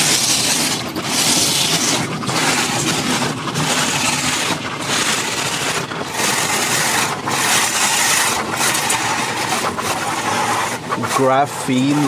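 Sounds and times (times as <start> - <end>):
car wash water spray and scrubbing: 0.0 - 12.0.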